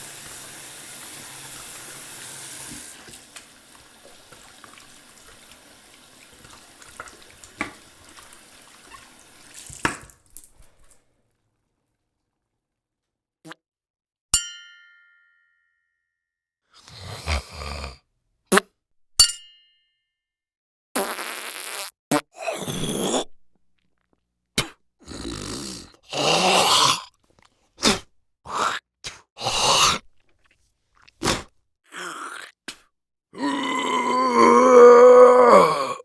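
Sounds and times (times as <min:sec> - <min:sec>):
mouth and breath sounds: 0:16.8 - 0:18.6, 0:24.6 - 0:33.6.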